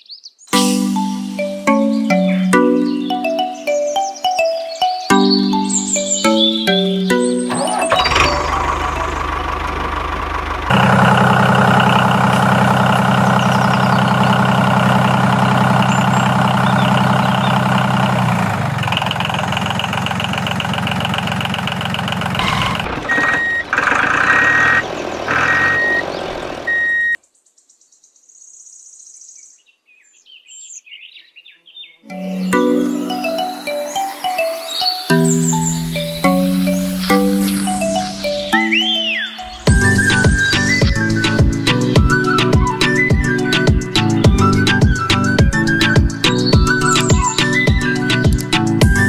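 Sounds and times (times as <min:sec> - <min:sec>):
tractor engine running: 0:05.5 - 0:27.2, 0:35.2 - 0:49.0
reversing alarm beeps: 0:22.4 - 0:26.1, 0:26.7 - 0:27.2.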